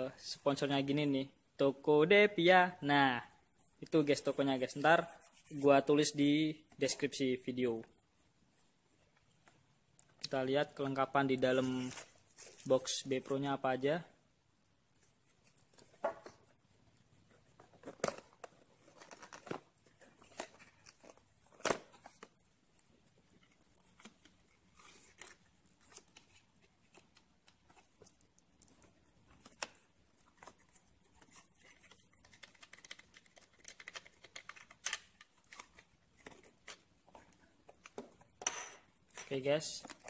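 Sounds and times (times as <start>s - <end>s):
cardboard packaging clicks and rustles: 17.4s - 38.4s.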